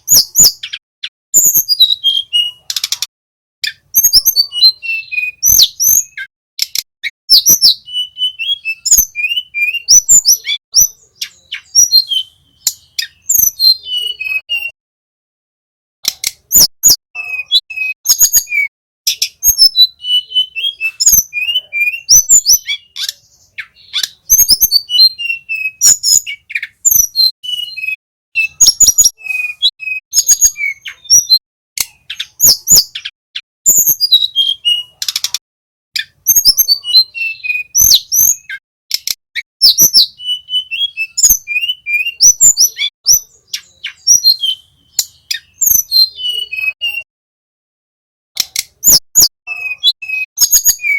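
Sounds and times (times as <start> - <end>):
bird singing rapid high chirps: 0.0 - 14.8, 16.0 - 35.4, 36.0 - 47.1, 48.4 - 50.9
sharp clicks: 6.6 - 6.9, 16.0 - 16.5, 35.0 - 35.4, 38.9 - 39.2, 48.4 - 48.8.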